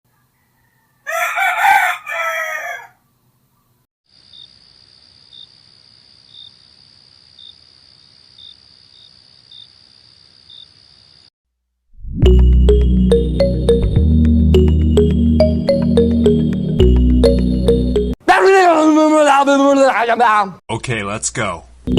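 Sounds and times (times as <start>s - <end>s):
rooster crowing: 0.1s - 3.0s.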